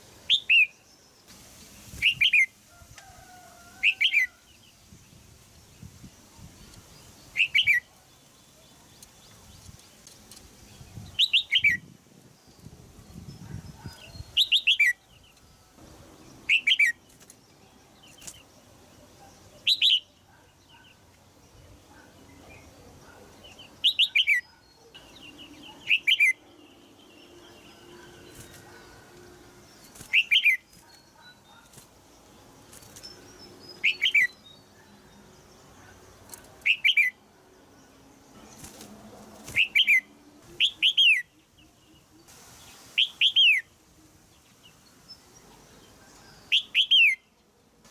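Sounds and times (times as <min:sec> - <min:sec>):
bulbul chattering calls: 0:07.3 - 0:07.9.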